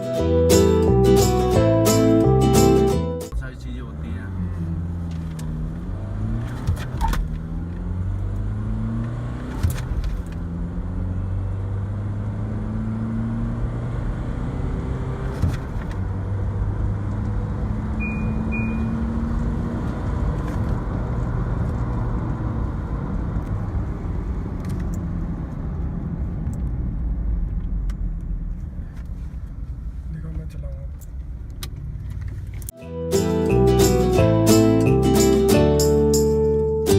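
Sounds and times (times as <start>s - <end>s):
car engine accelerating: 0.2s - 30.1s
short high beeps: 18.0s - 19.1s.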